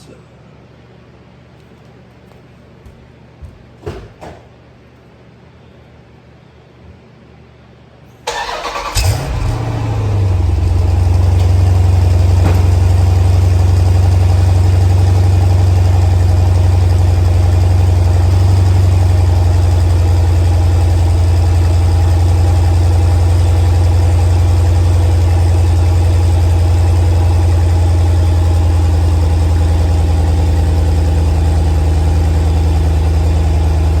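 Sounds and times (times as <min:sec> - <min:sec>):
starter motor cranking: 0:08.3 - 0:09.4
car engine idling: 0:08.3 - 0:34.0.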